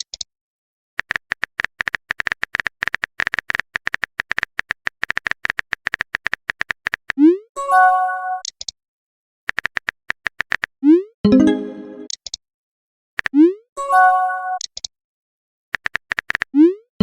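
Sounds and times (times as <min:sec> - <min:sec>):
phone keyboard typing clicks: 0:01.0 - 0:07.1, 0:09.5 - 0:10.7, 0:15.8 - 0:16.5.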